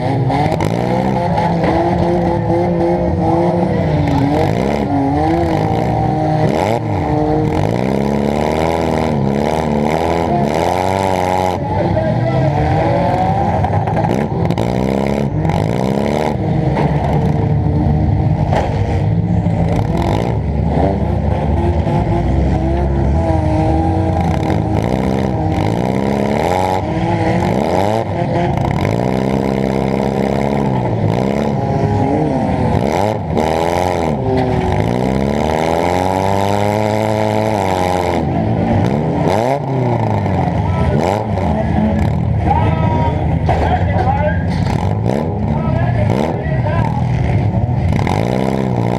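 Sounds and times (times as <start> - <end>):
car engine revving: 0.0 - 48.9
car body bangs and rattles: 43.3 - 44.8.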